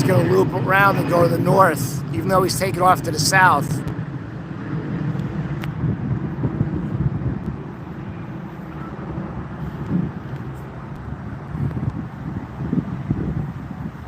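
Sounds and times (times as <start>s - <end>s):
distant jet airliner rumble: 0.0s - 14.0s
outdoor noise: 0.0s - 14.0s.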